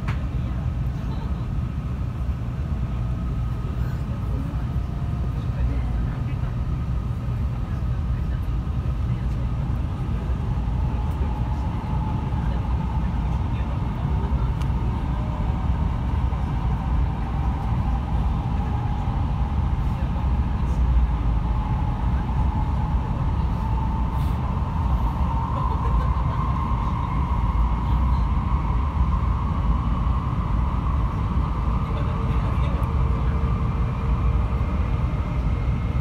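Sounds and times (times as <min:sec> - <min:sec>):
train cabin deep rumble: 0:00.0 - 0:36.0.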